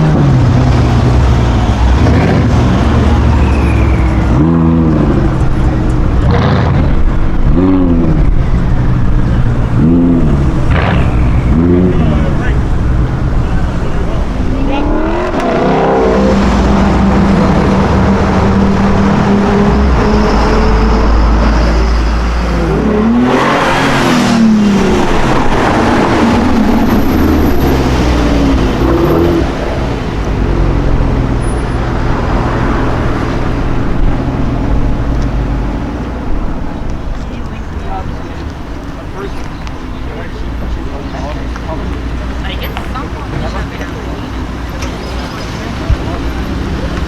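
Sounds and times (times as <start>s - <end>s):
car accelerating past: 0.0s - 36.9s
engine revving: 0.0s - 47.0s
street traffic engines: 0.0s - 47.0s.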